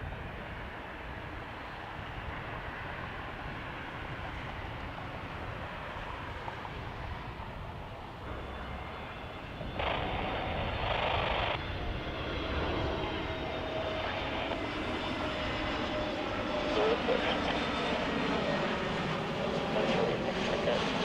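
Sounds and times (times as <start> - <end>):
jet engines rumbling with whine: 0.0 - 21.0
radio channel hiss: 9.8 - 11.6, 16.6 - 21.0.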